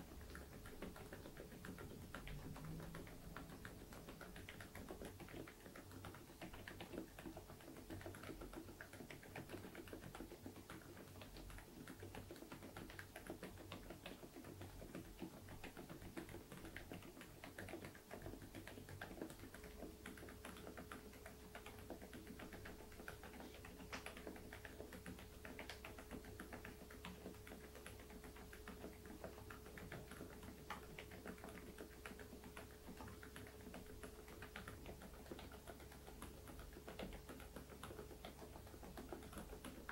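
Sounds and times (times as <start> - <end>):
soft mechanical keyboard typing: 0.0 - 39.9.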